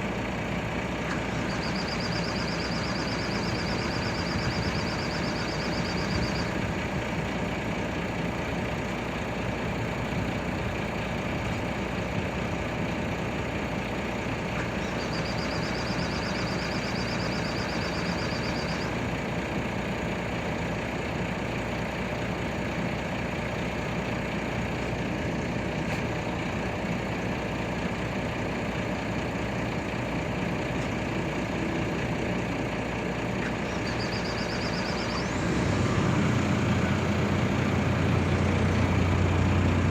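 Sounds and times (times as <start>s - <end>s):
excavator diesel engine running: 0.0s - 39.9s
pulsing alarm chirping: 1.2s - 7.0s, 14.7s - 19.2s, 33.6s - 39.9s.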